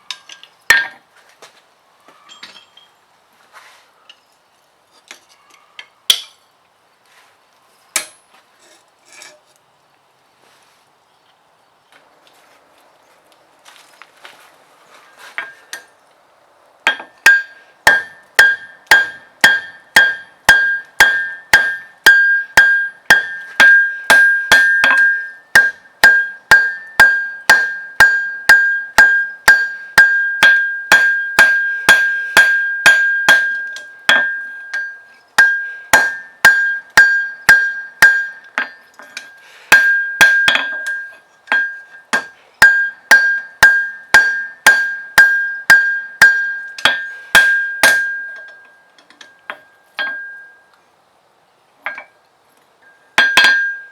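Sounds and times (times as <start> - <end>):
hammer striking steel on an anvil: 0.1 - 1.0, 6.1 - 6.4, 8.0 - 8.2, 16.9 - 50.6, 53.2 - 53.9.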